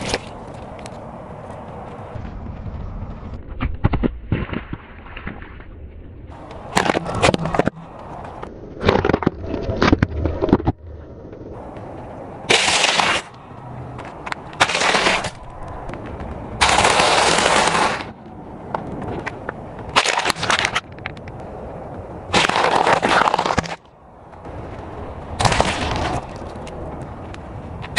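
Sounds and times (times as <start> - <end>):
things crushed under car tyre: 8.8 - 10.8, 25.4 - 26.4.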